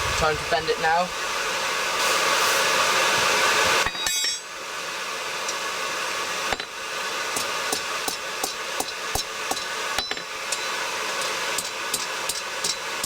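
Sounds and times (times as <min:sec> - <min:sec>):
forge rushing hiss: 0:00.0 - 0:03.9
metallic clink with ring: 0:03.9 - 0:04.5.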